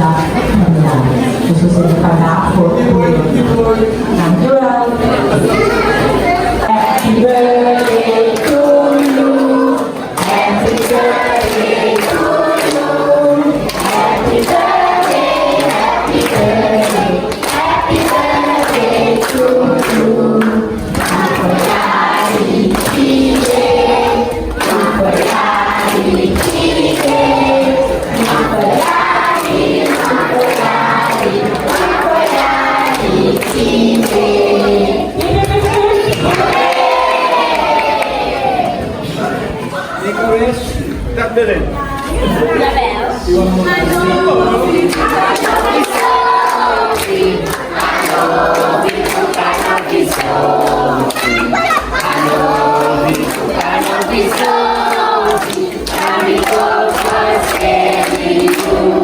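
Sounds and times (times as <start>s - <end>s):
group singing in chorus: 2.6s - 39.8s, 41.7s - 59.0s.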